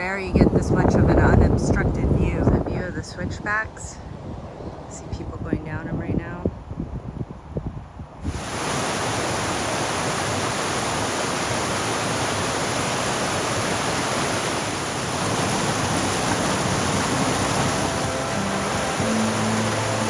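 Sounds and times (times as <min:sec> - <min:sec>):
waterfall rushing: 0:08.2 - 0:20.0
faint music: 0:16.1 - 0:20.0.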